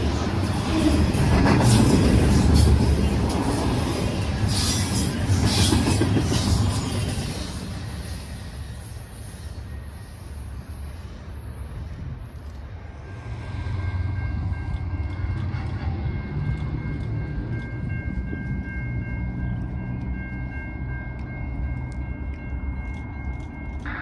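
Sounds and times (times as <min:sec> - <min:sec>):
freight train rumbling: 0:00.0 - 0:24.0.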